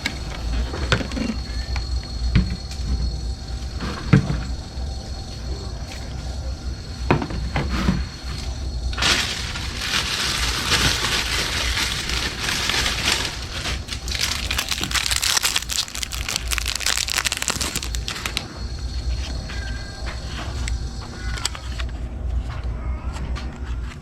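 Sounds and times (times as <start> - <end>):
dense crinkling and crackling: 9.0 - 18.5.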